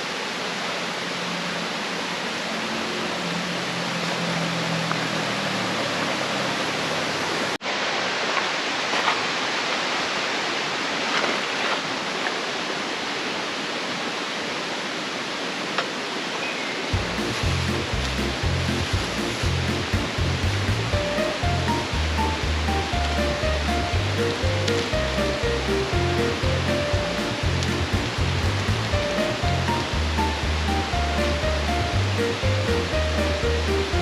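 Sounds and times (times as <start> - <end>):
flowing water: 0.0 - 34.0
music with deep bass: 17.0 - 34.0.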